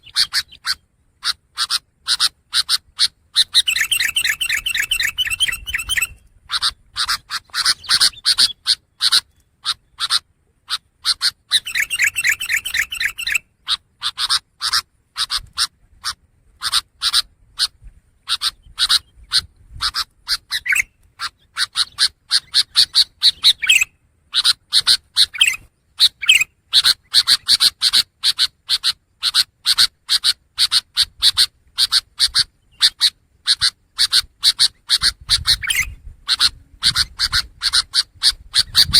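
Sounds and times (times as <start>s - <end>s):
bird rattling trill: 1.6s - 13.4s.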